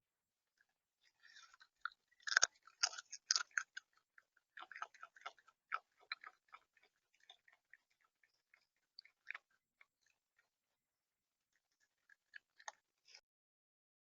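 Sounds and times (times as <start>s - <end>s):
bird pecking and cracking seed: 1.2s - 7.5s.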